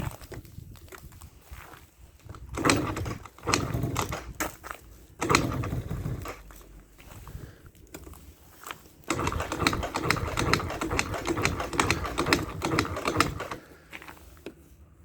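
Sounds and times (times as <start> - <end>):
scooter engine rough bursts: 2.5 - 4.4, 5.2 - 6.6, 9.1 - 14.1.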